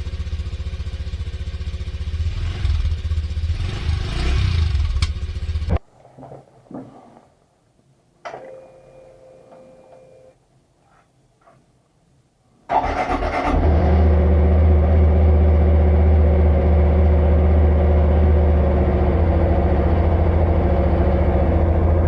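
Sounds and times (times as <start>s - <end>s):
motorcycle engine kick-started: 12.7s - 14.2s.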